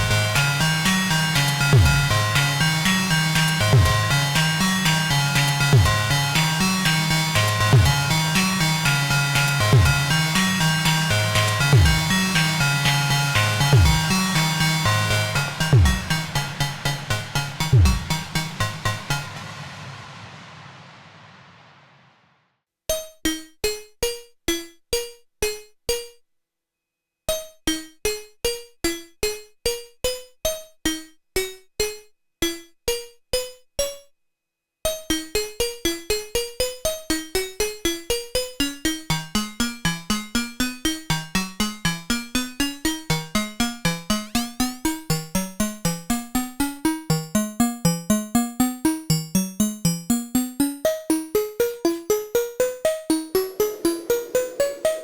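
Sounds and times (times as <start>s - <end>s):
plucked synth notes: 13.5s - 19.4s
low synth line: 13.5s - 22.3s, 52.4s - 55.0s.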